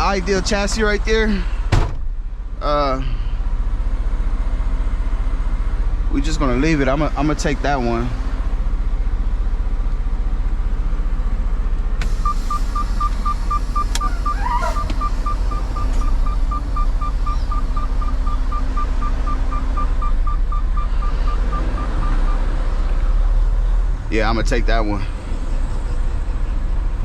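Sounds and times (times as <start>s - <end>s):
diesel engine idling: 0.0s - 27.0s
electronic warning beeps: 12.1s - 22.5s
click: 13.9s - 14.1s.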